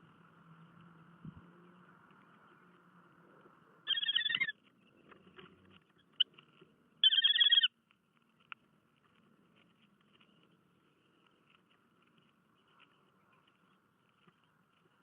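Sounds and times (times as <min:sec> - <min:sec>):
bird trilling: 0:03.8 - 0:04.6, 0:07.0 - 0:07.7
faint sharp bird chirps: 0:03.9 - 0:05.1, 0:07.0 - 0:07.7.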